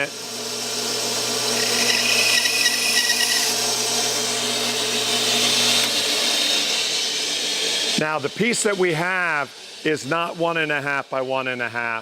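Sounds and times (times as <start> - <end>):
high motor whine: 0.1 - 8.4
bandsaw cutting wood: 0.7 - 8.0.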